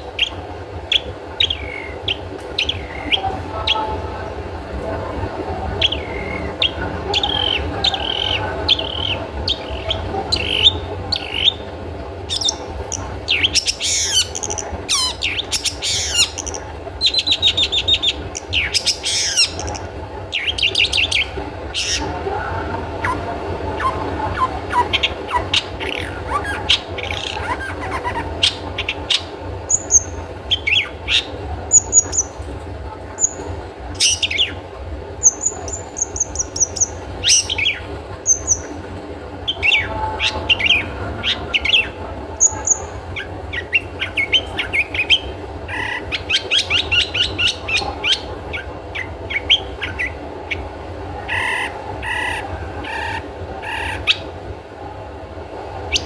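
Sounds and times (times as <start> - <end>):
low steady hum: 0.0 - 56.0
shrike chirping and rattling: 5.8 - 22.2, 22.8 - 32.4.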